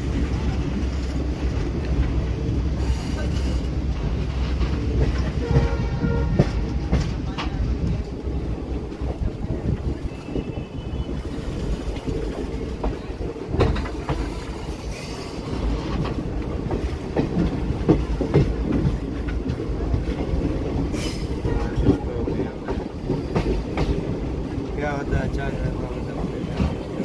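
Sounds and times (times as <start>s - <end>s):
train wheels rumbling on track: 0.0s - 27.0s
wheels clicking over rail joints: 11.4s - 24.8s.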